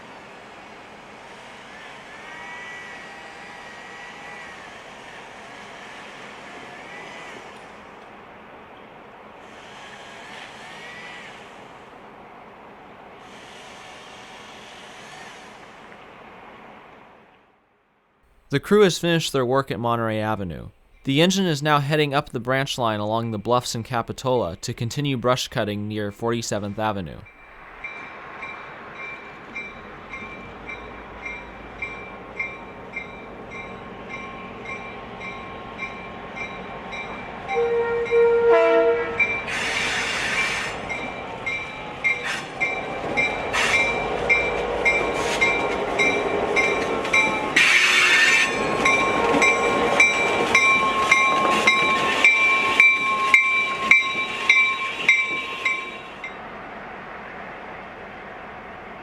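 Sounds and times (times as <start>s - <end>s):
diesel locomotive passing: 0.0s - 17.6s, 25.9s - 59.0s
locomotive horn: 1.7s - 7.7s, 37.4s - 40.8s, 47.6s - 50.1s
crossing bell ringing: 18.5s - 38.5s, 39.2s - 39.6s, 40.8s - 56.4s.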